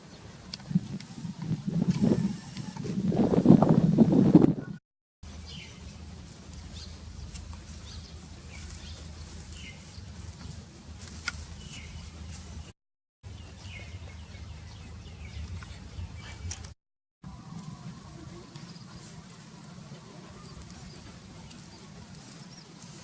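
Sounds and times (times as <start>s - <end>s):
small birds chirping: 5.4s - 12.7s, 13.3s - 16.8s, 18.3s - 23.0s.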